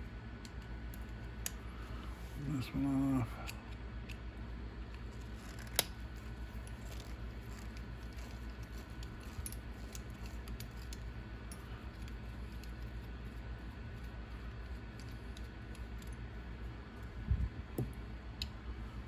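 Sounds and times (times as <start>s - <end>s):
steady low hum: 0.0s - 19.0s
small metal parts clinking: 5.1s - 12.8s.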